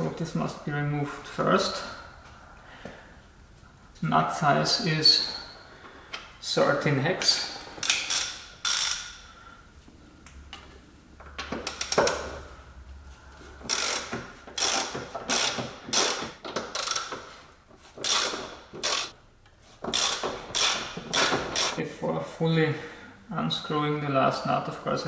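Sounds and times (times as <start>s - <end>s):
socket ratchet clicking: 7.8s - 9.3s, 13.6s - 17.2s, 18.0s - 19.1s, 19.9s - 21.8s.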